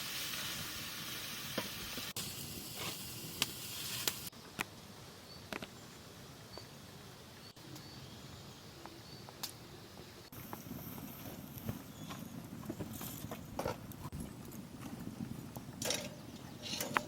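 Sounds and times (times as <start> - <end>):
food sizzling in a pan: 0.0 - 4.3.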